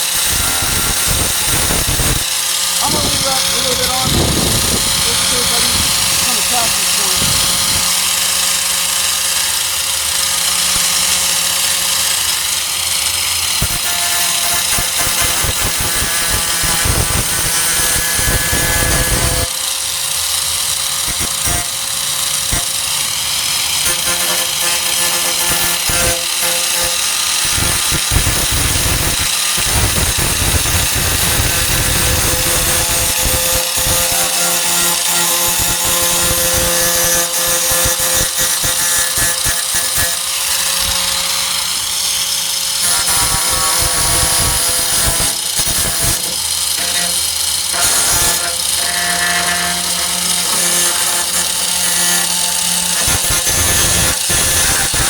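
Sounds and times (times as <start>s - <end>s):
angle grinder grinding metal: 0.0s - 55.0s.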